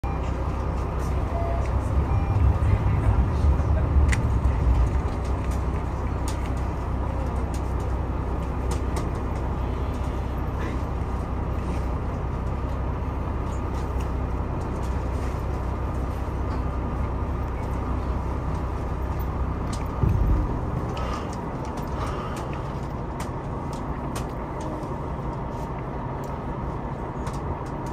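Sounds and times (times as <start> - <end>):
train rumble and hum: 0.0 - 27.9.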